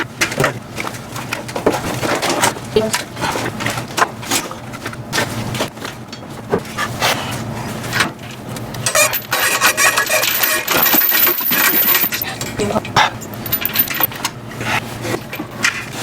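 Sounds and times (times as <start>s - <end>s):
metal clinking and rattling: 8.8s - 14.1s.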